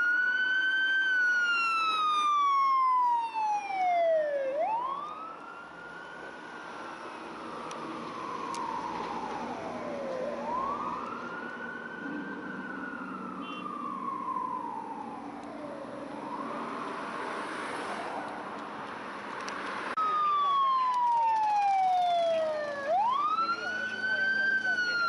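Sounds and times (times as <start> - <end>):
closer siren: 0.0 - 18.7, 19.9 - 25.0
wailing fire engine sirens: 0.0 - 18.8, 19.9 - 25.0.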